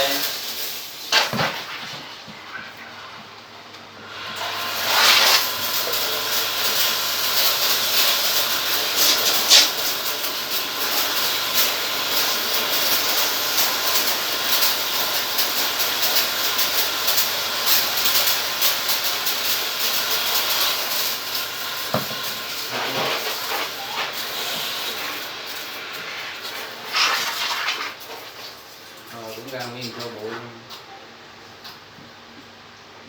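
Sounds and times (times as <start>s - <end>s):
water spray jet hissing: 4.1s - 28.3s
water spattering: 4.4s - 15.9s.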